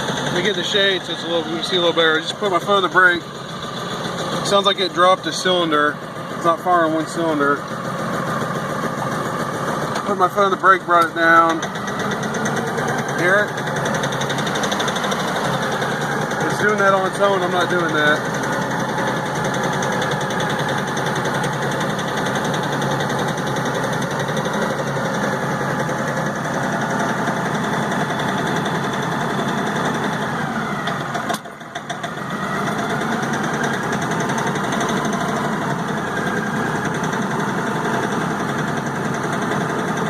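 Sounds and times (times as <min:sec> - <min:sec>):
tractor diesel engine idling roughly: 0:00.0 - 0:40.0.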